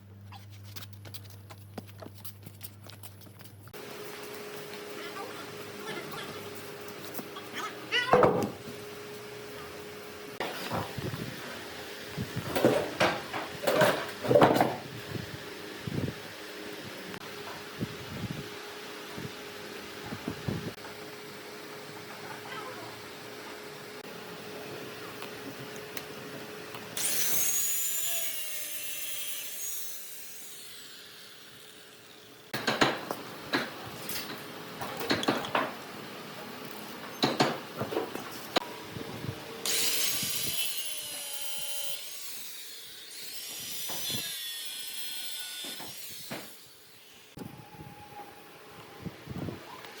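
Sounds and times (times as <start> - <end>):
power tool cutting wood: 26.9 - 32.6, 39.6 - 47.6.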